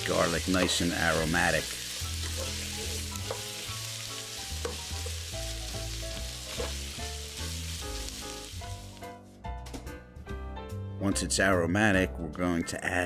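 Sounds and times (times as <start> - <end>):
food sizzling in oil: 0.0 - 9.1
spatula stirring in pot: 1.7 - 7.0.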